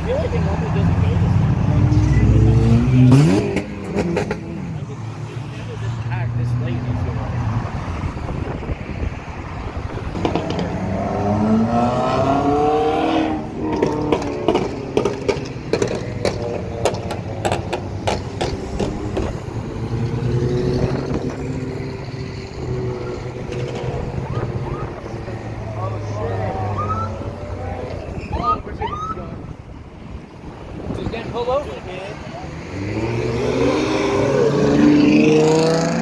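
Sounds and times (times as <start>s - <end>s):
engines idling in traffic: 0.0s - 12.5s, 13.2s - 34.3s
car engine accelerating: 9.8s - 28.2s, 32.1s - 36.0s.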